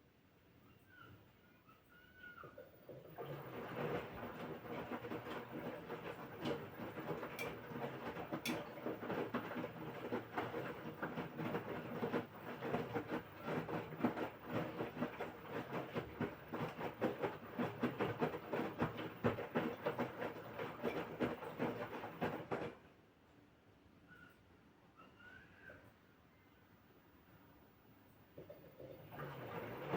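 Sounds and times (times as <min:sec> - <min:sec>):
washing machine sloshing and clattering: 0:02.3 - 0:22.9, 0:28.3 - 0:29.9.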